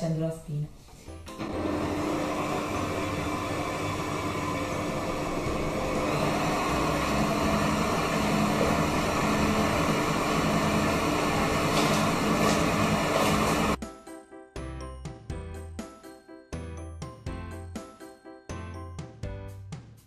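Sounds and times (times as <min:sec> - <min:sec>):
stand mixer motor running: 0:01.3 - 0:13.8.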